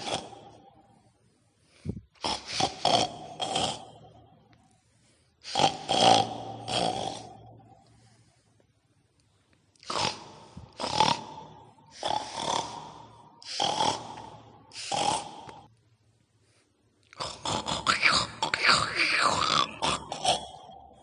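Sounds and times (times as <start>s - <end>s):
pig-like snorts and grunts: 0.0s - 0.7s, 1.9s - 4.2s, 5.4s - 7.6s, 9.8s - 15.7s, 17.1s - 21.0s.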